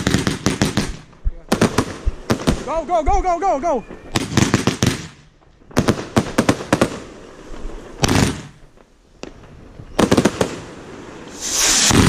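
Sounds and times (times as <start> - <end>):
fireworks cracking: 0.0 - 12.0
heavy firework bang: 11.3 - 12.0.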